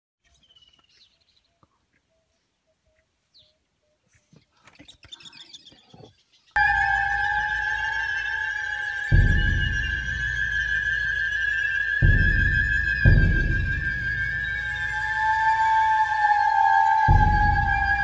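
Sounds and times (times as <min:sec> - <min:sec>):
faint bird chirps: 0:00.2 - 0:16.2
high-pitched squealing tone: 0:06.6 - 0:18.0.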